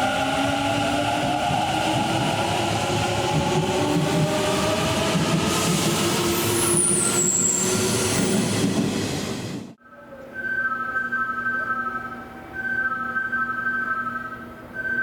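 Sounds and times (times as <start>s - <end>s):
train running noise: 0.0s - 9.8s
train high squeals: 6.1s - 8.7s.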